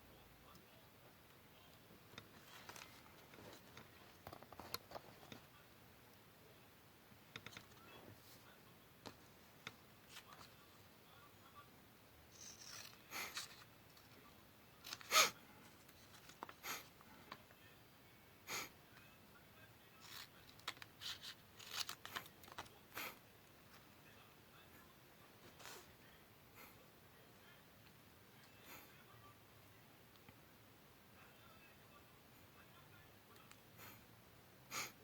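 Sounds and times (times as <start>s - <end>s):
paper and tools rustling: 2.3s - 5.4s, 12.3s - 16.6s, 20.0s - 22.8s.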